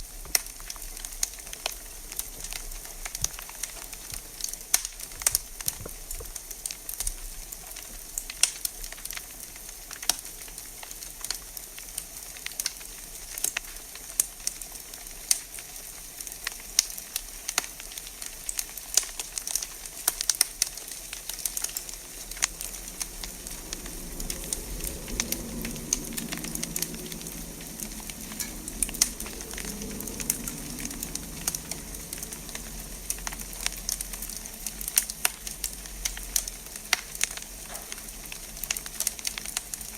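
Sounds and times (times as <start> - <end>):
wood fire crackling: 0.0 - 39.9
low rumble: 21.8 - 36.2.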